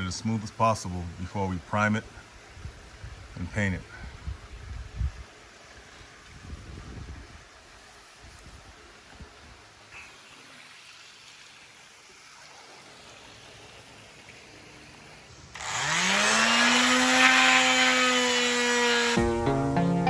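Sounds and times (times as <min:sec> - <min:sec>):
electric sander motor whine: 0:15.6 - 0:19.3.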